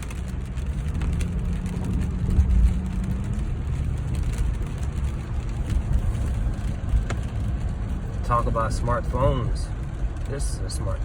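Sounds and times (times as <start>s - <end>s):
tyre and engine rumble: 0.0s - 11.0s.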